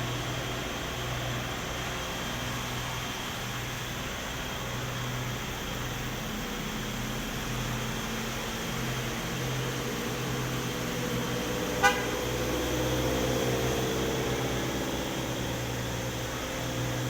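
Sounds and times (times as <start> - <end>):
truck engine running: 0.0 - 17.0
truck horn toot: 11.8 - 12.4.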